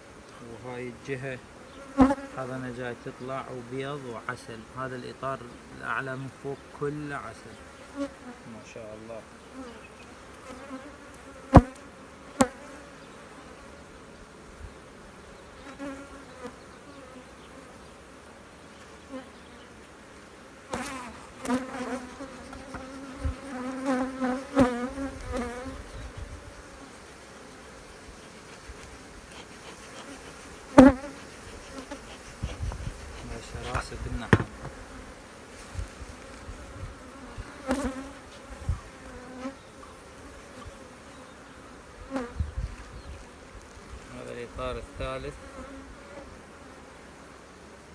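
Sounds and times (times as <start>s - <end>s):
honeybees buzzing: 0.0s - 47.9s
sharp knocks: 34.2s - 34.8s.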